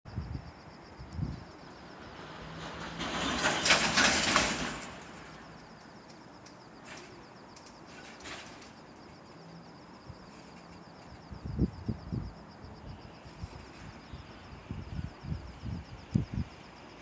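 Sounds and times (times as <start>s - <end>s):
locomotive passing by: 1.6s - 6.0s.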